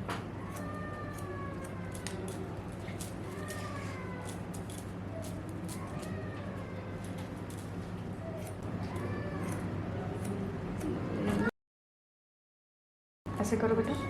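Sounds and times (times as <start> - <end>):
scissors snipping hair: 0.4 - 6.2, 7.0 - 11.5.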